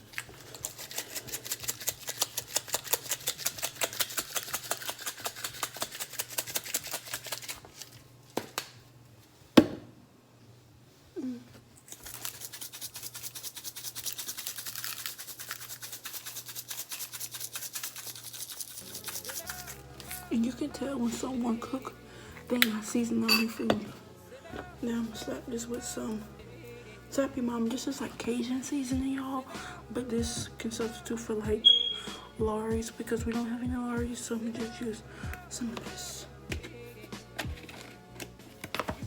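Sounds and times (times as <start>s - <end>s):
spice shaker rattling: 0.2s - 8.0s, 11.9s - 20.3s.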